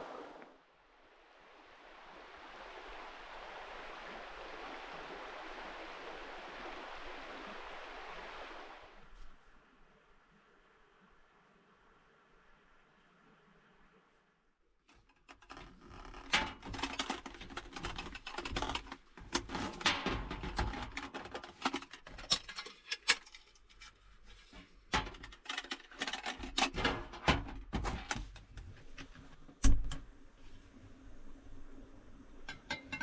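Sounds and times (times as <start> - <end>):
rustling: 14.9 - 26.8.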